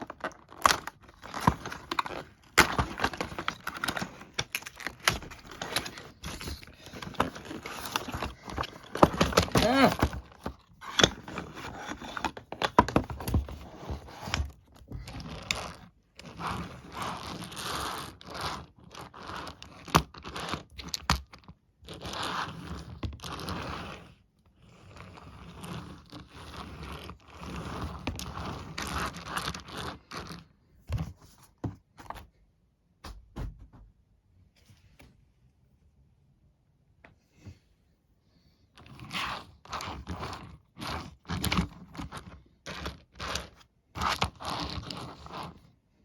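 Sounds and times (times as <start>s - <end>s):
packaging scraping and crinkling: 0.0s - 21.3s, 24.8s - 30.5s, 38.8s - 45.7s.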